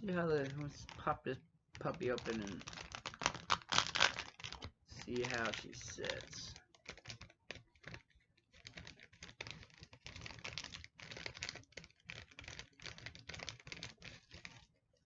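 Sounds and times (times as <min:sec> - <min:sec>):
plastic packaging crinkling: 0:00.0 - 0:14.7.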